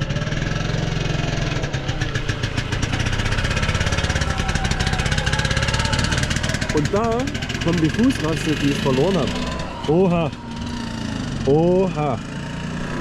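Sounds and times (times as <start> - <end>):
small motorbike engine running: 0.0 - 13.0.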